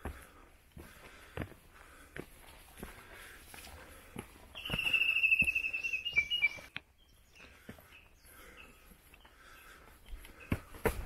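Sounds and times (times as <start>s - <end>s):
footsteps on dirt path: 0.0s - 11.0s
bird trilling: 4.6s - 6.7s.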